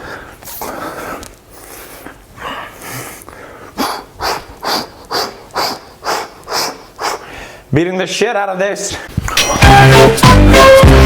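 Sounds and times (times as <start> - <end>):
heavy panting: 0.0 - 7.7
snorting breaths: 0.0 - 7.7.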